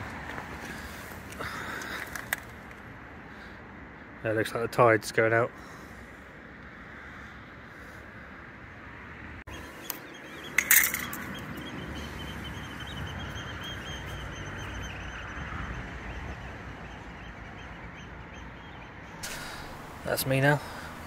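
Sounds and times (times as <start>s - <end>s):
birds calling: 9.4s - 21.0s
ambient background noise: 9.5s - 21.0s.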